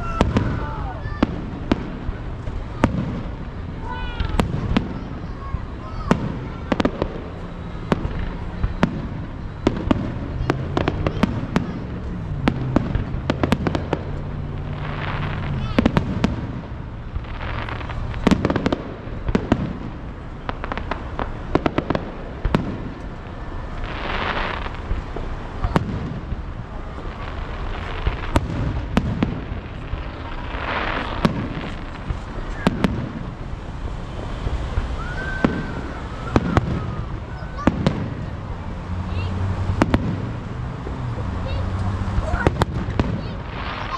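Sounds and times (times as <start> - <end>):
fireworks bangs: 0.0 - 43.9
fireworks crackling and hissing: 0.0 - 43.9.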